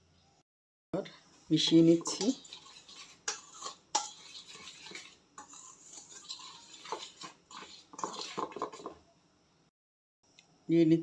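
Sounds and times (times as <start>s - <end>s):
utensil stirring flour in bowl: 1.4s - 9.1s
scraping and clinking against bowl: 1.6s - 9.0s.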